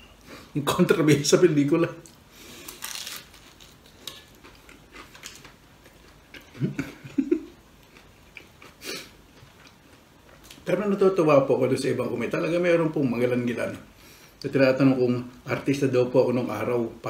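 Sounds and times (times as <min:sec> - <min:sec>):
man chewing food: 0:03.5 - 0:10.6.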